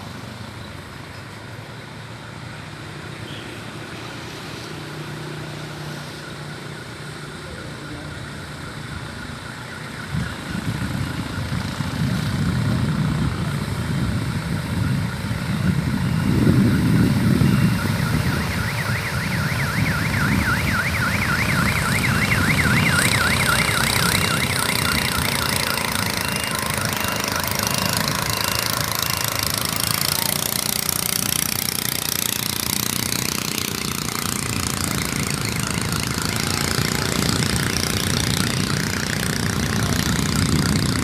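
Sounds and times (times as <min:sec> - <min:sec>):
motor engine running: 0:10.1 - 0:41.0
high warbling trill: 0:15.6 - 0:40.4.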